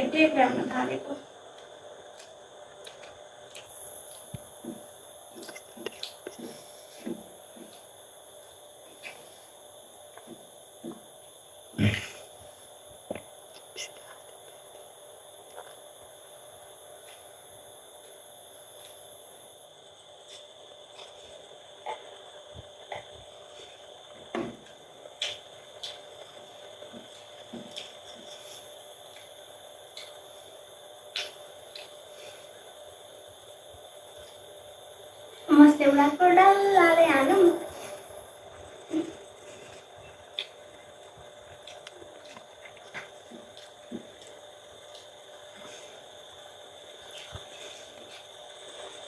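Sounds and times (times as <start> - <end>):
faint steady hum: 0.0 - 49.0
person chewing food: 2.1 - 7.9, 38.9 - 46.0.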